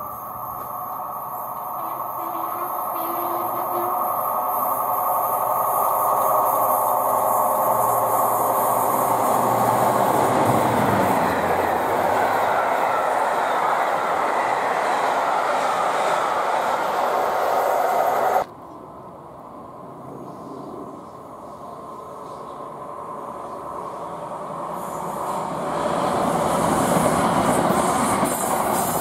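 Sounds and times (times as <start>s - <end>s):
locomotive passing: 0.0s - 18.5s
train wheels rushing on rails: 0.0s - 19.0s, 19.6s - 29.0s.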